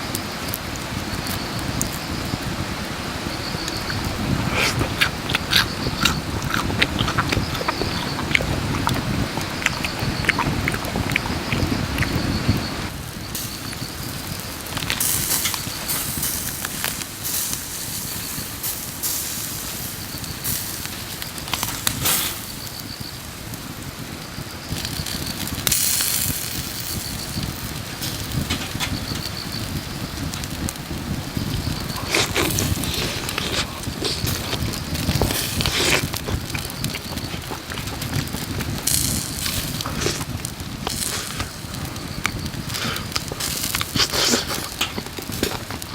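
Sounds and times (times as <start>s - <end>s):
wood fire crackling and hissing: 0.0s - 45.9s.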